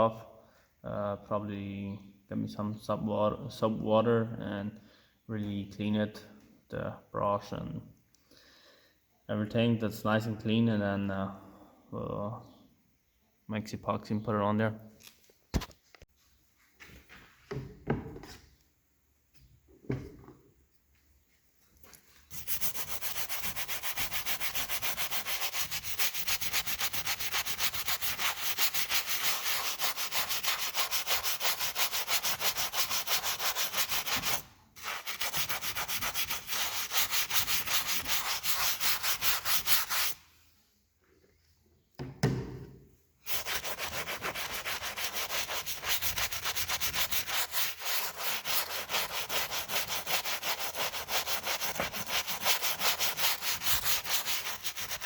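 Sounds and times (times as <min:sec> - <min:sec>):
knock: 0:17.5 - 0:18.3, 0:19.8 - 0:20.4, 0:42.0 - 0:42.8
brush scrubbing metal: 0:22.2 - 0:40.2, 0:43.2 - 0:55.0.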